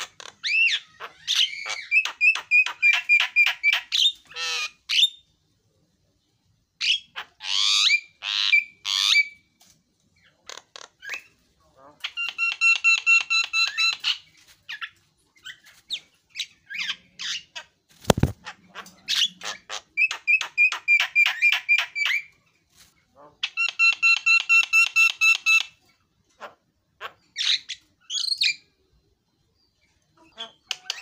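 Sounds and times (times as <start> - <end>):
bird whistles and squawks: 0.0 - 5.2, 12.1 - 22.4.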